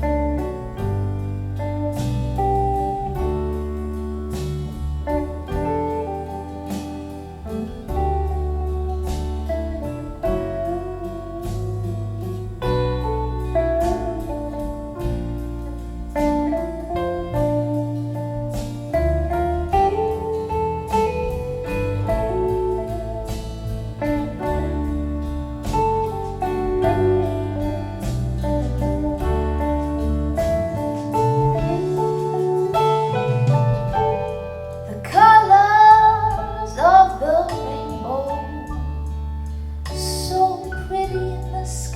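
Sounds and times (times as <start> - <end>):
deep sustained bass line: 0.0 - 41.9
folk music with guitar: 0.0 - 41.9
person singing: 34.9 - 39.0, 39.9 - 41.9.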